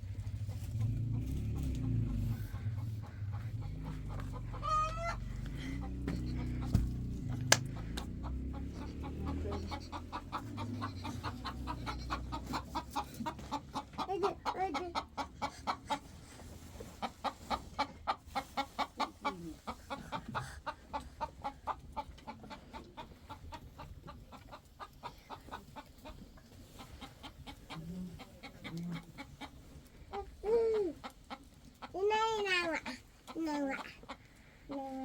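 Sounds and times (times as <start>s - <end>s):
chickens clucking: 0.0s - 35.0s
chicken rising and falling call: 1.8s - 12.9s.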